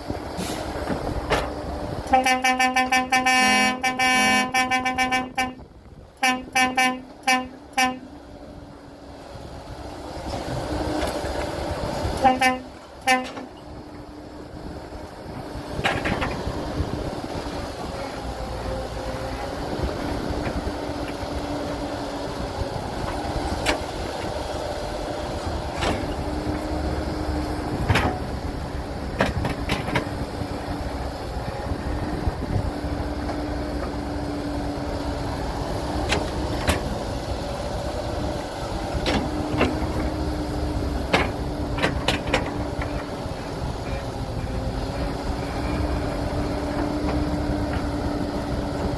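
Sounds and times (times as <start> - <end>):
heavy diesel machinery engine: 0.0 - 48.9
sharp knocks and clanks: 27.8 - 28.3, 29.2 - 30.2, 41.0 - 43.1.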